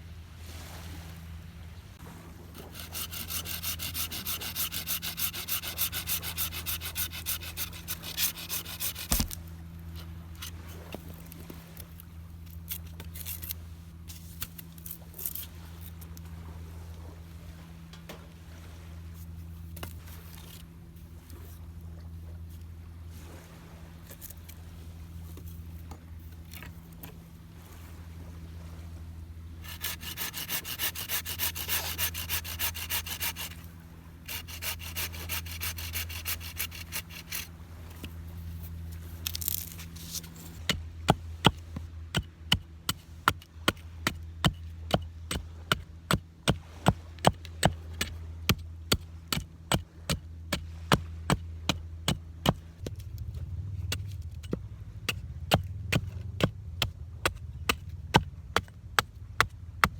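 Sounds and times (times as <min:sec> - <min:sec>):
hand saw cutting wood: 0:02.5 - 0:09.4, 0:29.6 - 0:53.1, 0:53.8 - 0:59.9
wood being chopped: 0:08.1 - 0:09.4
low rumble: 0:52.6 - 0:59.9.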